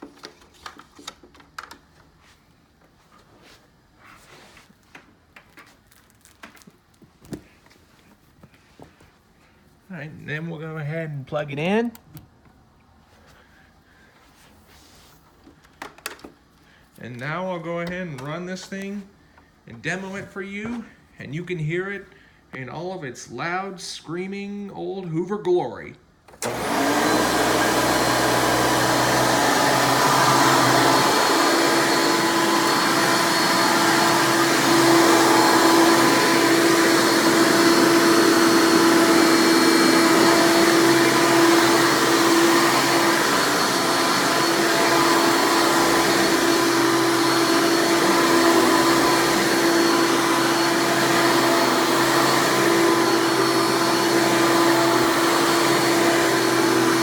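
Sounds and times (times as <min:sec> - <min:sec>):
upright vacuum cleaner running: 0:26.3 - 0:57.0.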